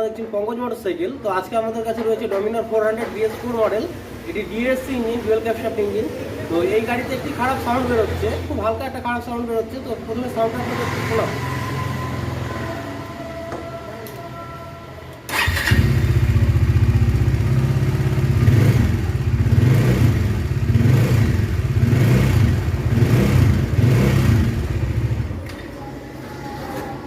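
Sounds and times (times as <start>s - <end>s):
motorcycle engine starting and running: 15.3s - 25.7s.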